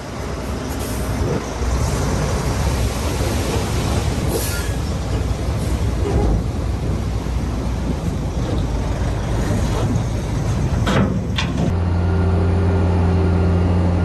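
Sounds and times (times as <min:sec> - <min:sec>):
diesel machinery rumble: 0:00.0 - 0:14.0.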